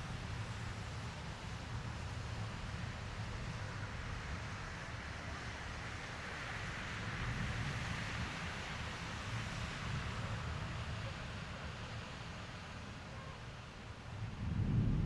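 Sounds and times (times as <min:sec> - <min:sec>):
low thunder rumble: 0:14.1 - 0:15.0.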